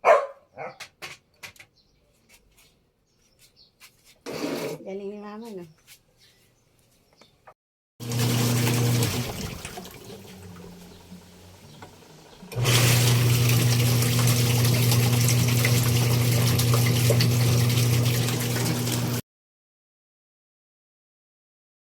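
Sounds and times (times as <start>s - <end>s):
washing machine electric hum: 8.0s - 19.2s
water swishing in tub: 8.0s - 19.2s.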